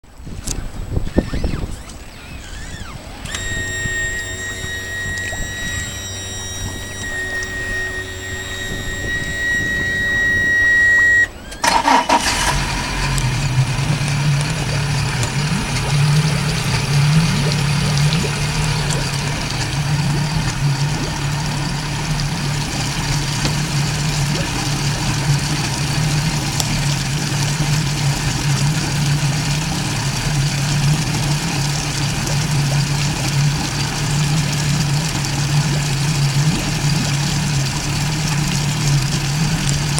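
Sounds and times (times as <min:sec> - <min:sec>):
boat engine idling: 0:00.9 - 0:39.9
starter cranking: 0:01.4 - 0:28.5
high beep: 0:03.3 - 0:11.6.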